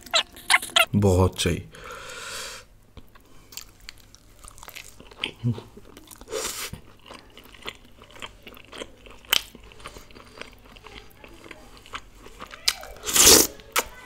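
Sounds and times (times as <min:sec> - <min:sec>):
person chewing with mouth clicks: 0:00.0 - 0:00.9, 0:03.0 - 0:13.9.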